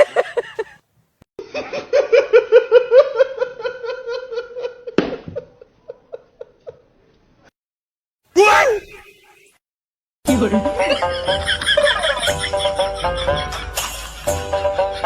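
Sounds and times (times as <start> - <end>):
person laughing hard: 0.0 - 0.8.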